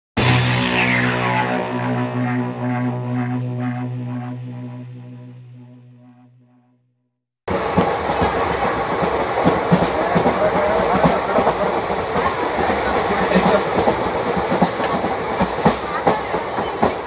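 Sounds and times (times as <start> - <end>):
train wheels clattering on track: 7.5 - 17.0.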